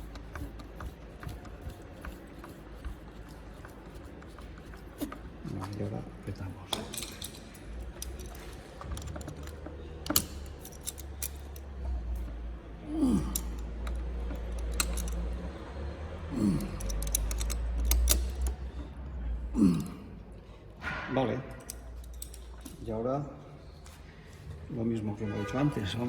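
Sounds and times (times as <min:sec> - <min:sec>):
hand tool tightening bolts: 0:00.0 - 0:05.9, 0:06.7 - 0:12.4, 0:13.2 - 0:15.6, 0:16.4 - 0:18.9, 0:21.6 - 0:22.9
metallic clicks and taps: 0:06.7 - 0:12.3, 0:16.7 - 0:18.7.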